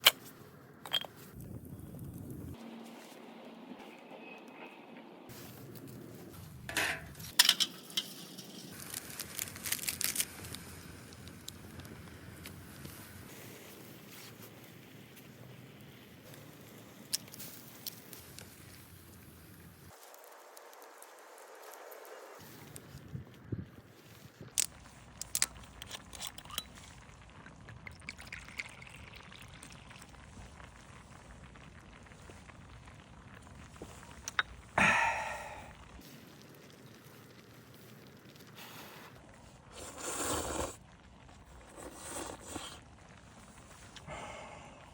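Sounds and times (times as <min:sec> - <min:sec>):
cookware and utensils clinking: 0:06.7 - 0:08.8
liquid being poured: 0:26.0 - 0:31.1
utensil scraping: 0:41.6 - 0:42.8.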